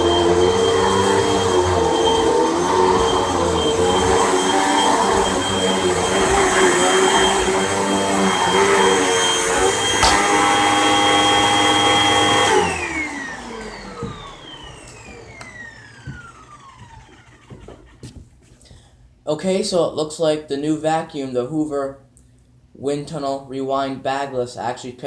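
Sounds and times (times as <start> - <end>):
vacuum cleaner running: 0.0 - 18.0
sharp click: 10.0 - 10.5.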